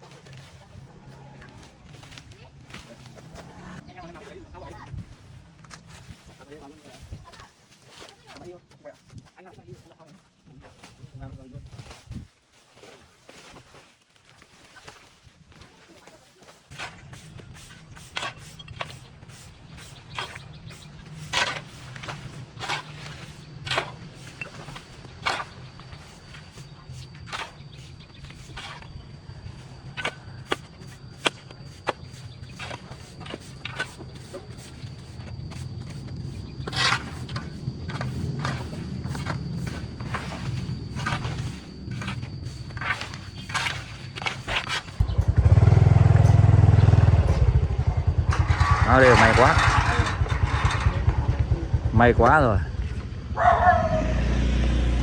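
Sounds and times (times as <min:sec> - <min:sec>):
scraping brushing strokes: 0:10.7 - 0:45.0
low hum: 0:45.0 - 0:55.0
motorcycle engine running: 0:45.0 - 0:55.0.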